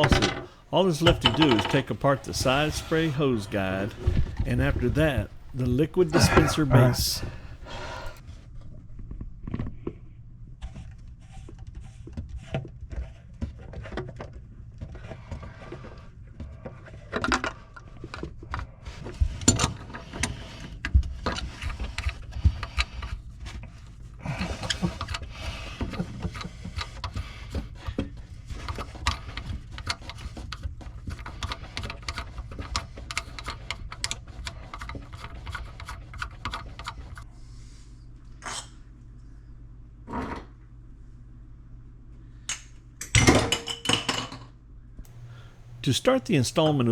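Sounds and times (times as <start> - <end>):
faucet parts clicking and scraping: 0.0 - 5.8.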